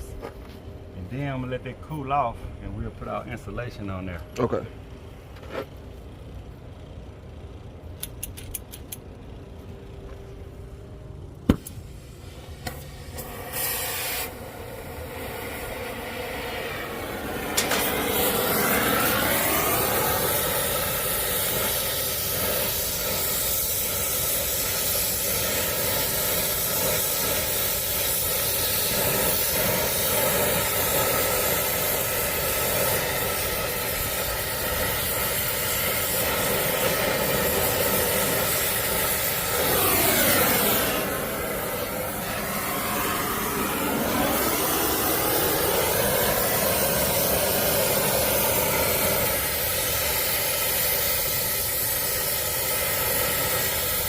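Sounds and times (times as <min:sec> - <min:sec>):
torch flame hissing: 0:11.5 - 0:54.0
machine sweeping in pitch: 0:39.5 - 0:47.0.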